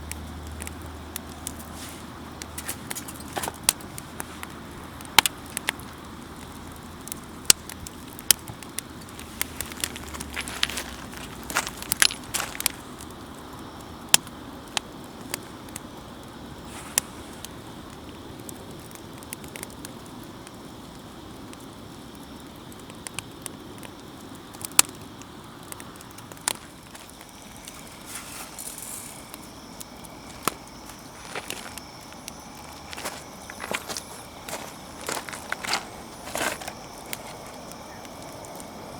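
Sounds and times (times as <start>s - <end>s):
campfire crackling and popping: 0.0s - 38.9s
loud fire snaps: 0.0s - 38.9s.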